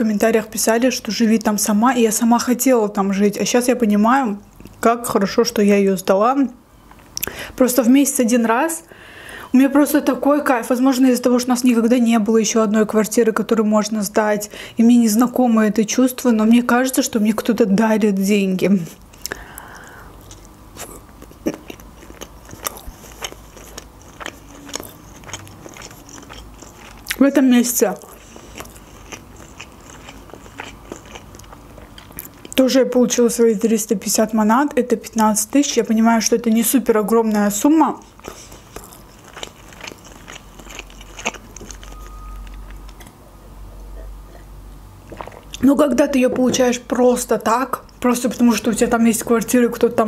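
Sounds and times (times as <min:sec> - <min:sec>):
chewing with wet mouth clicks: 0:19.0 - 0:27.3, 0:27.9 - 0:32.6, 0:38.2 - 0:43.1, 0:45.0 - 0:45.6.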